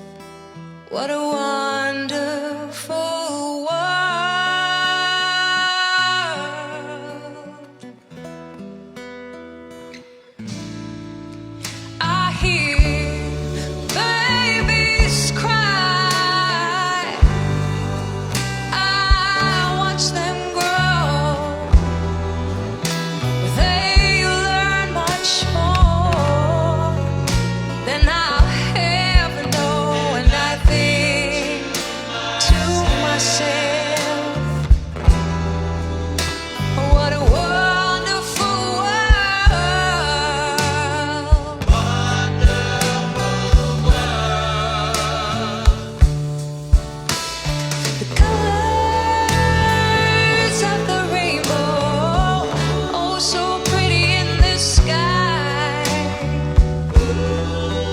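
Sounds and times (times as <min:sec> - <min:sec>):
woman singing: 0:00.9 - 0:07.9, 0:12.0 - 0:34.9, 0:36.6 - 0:46.1, 0:48.0 - 0:57.9
band with guitar and bass: 0:04.2 - 0:57.9
drum hits: 0:41.4 - 0:48.5.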